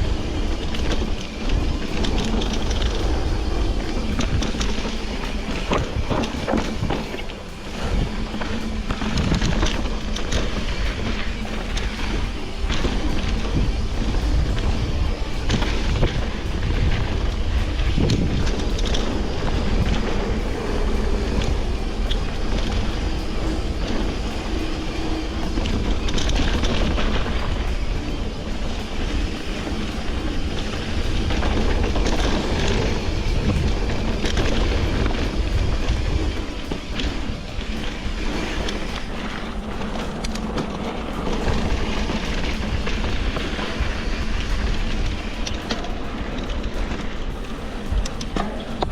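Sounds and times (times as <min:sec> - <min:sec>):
wind rushing over microphone: 0:00.0 - 0:48.9.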